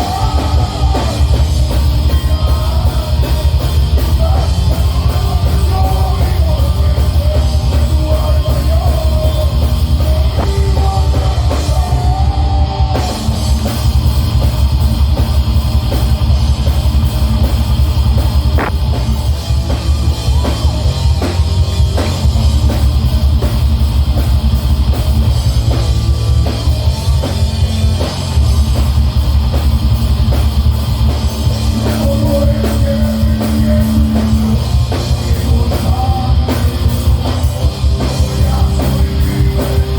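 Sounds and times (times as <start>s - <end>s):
distorted guitars and bass: 0.0s - 39.9s
fast drumming: 0.0s - 39.9s.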